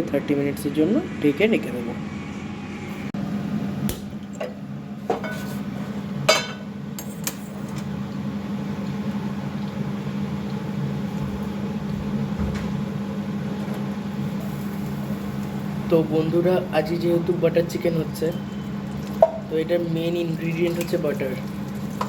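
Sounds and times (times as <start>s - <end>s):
steady low hum: 0.0s - 22.0s
dishes clinking: 4.4s - 5.6s, 6.3s - 7.3s.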